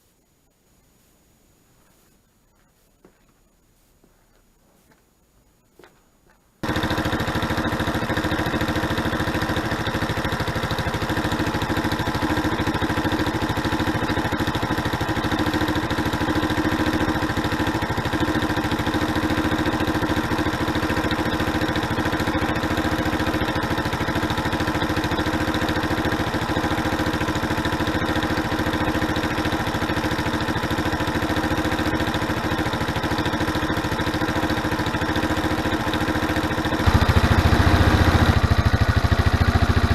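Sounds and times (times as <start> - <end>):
scooter engine idling: 6.6 - 39.9.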